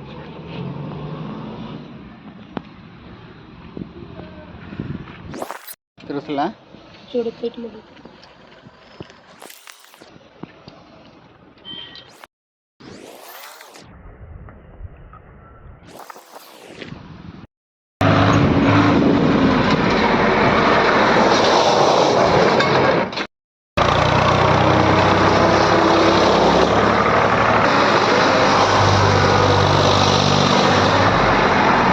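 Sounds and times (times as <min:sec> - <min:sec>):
tractor diesel engine running: 0:23.8 - 0:31.9.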